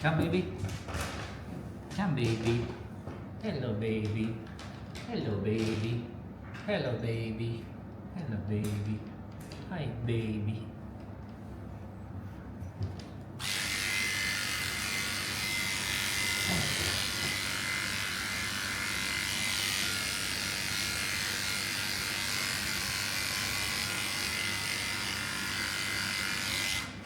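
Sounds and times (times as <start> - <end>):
electric clippers buzzing: 13.4 - 27.0.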